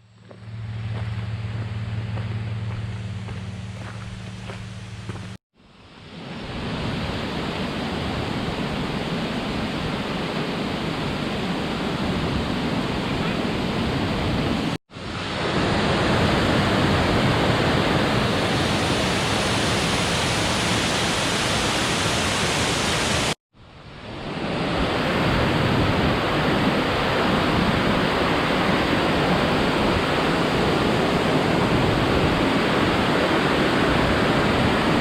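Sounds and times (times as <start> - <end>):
waterfall roaring: 6.6 - 23.4, 24.5 - 35.0.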